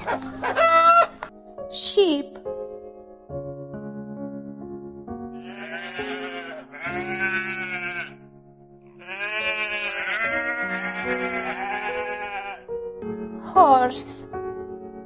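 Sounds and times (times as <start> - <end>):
soft piano music: 0.0 - 15.0
sheep bleating: 5.4 - 8.2, 9.0 - 12.7.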